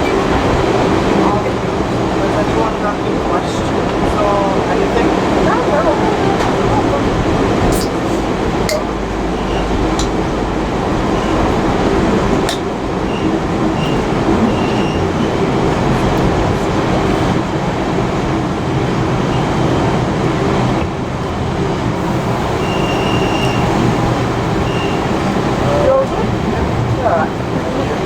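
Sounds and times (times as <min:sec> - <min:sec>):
train wheels rumbling on rails: 0:00.0 - 0:28.0
faint high squeals: 0:22.0 - 0:26.2.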